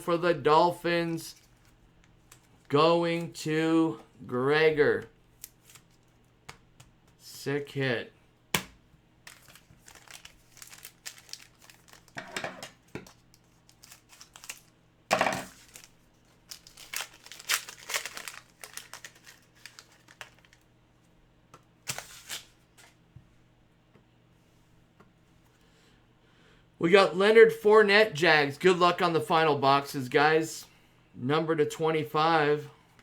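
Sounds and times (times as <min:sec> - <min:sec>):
card pack wrappers crinkling and tearing: 0:01.1 - 0:02.8, 0:05.3 - 0:06.3, 0:09.2 - 0:20.7, 0:21.8 - 0:23.0.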